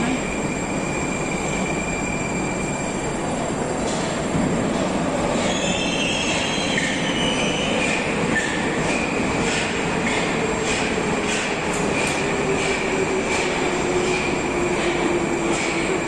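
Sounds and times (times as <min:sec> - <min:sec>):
metro train rumbling: 0:00.0 - 0:16.0
wheels and brakes squealing: 0:00.3 - 0:03.1, 0:05.3 - 0:08.7.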